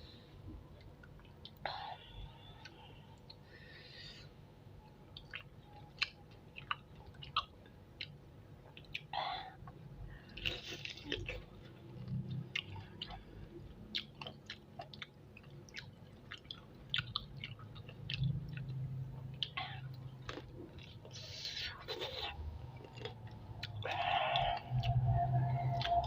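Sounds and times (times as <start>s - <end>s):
chewing and biting: 13.9s - 21.2s, 21.9s - 26.0s.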